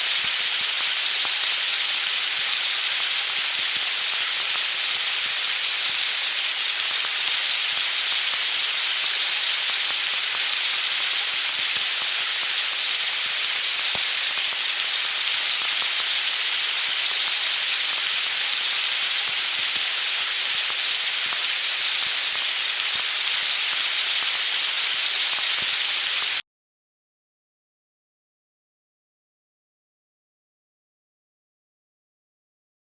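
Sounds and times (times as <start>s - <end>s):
chicken sizzling on a grill: 0.0s - 26.4s.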